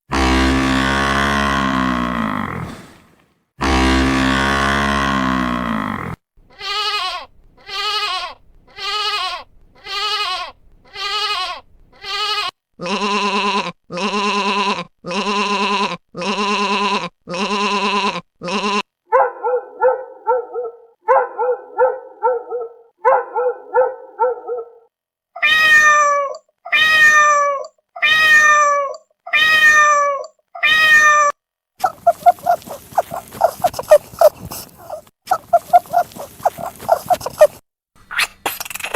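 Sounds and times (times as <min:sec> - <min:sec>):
rapid short grunting: 0:00.1 - 0:06.2, 0:31.8 - 0:38.9
farm animal calls: 0:25.4 - 0:38.6.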